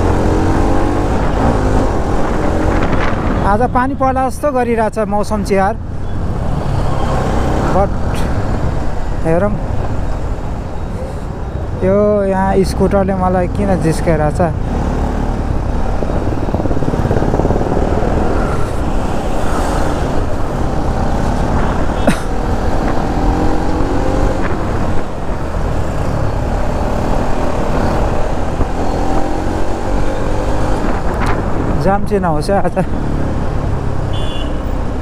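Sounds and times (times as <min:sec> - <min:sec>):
wind rumble: 0:00.0 - 0:03.8, 0:14.6 - 0:32.1
traffic: 0:00.0 - 0:35.0.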